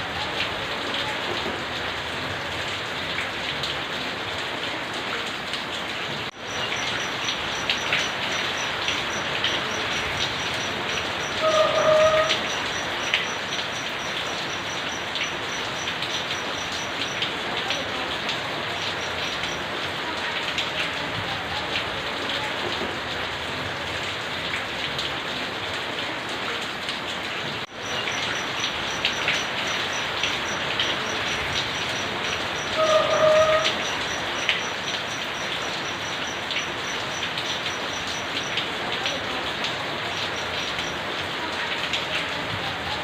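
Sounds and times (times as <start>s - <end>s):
rain pattering: 0.0s - 43.0s
drops ticking: 6.3s - 20.7s, 27.6s - 41.2s.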